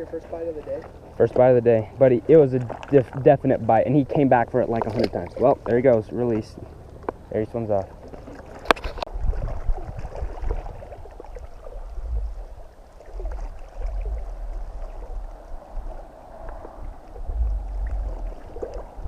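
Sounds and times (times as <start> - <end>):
water lapping and splashing: 0.0 - 19.0
wind rumble on microphone: 8.6 - 19.0.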